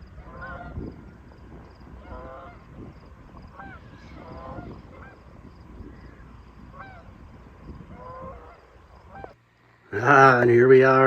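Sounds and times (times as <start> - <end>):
geese honking: 0.2 - 0.8, 2.0 - 2.8, 3.5 - 5.2, 6.7 - 7.1, 7.9 - 9.4.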